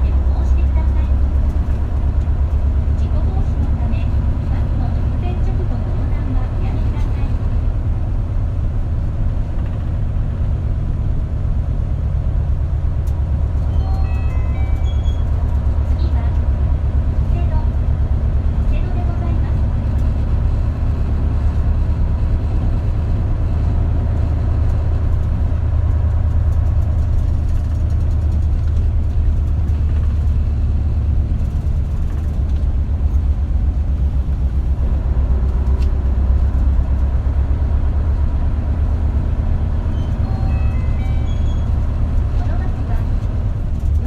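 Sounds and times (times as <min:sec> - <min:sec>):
bus engine droning: 0:00.0 - 0:44.0
short high tones: 0:13.7 - 0:15.3, 0:40.0 - 0:41.8
road and body noise: 0:17.9 - 0:44.0.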